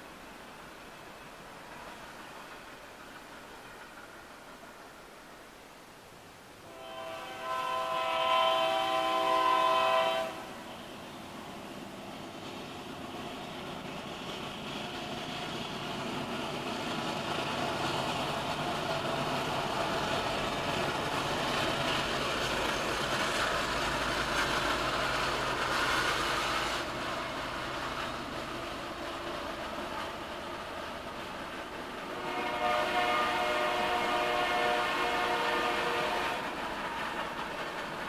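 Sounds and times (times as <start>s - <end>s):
train wheels on rails: 0.0s - 38.0s
train horn blast: 6.6s - 10.8s, 32.1s - 36.5s.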